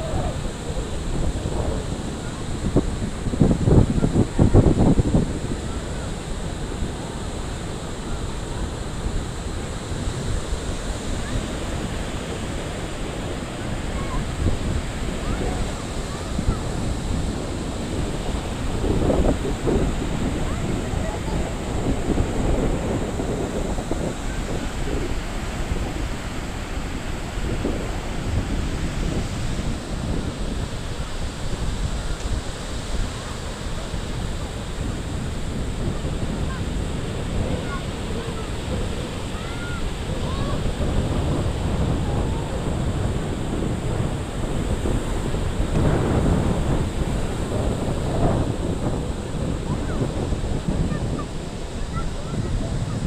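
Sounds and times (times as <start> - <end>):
ocean surf washing ashore: 0.0 - 53.0
wind buffeting microphone: 0.0 - 53.0.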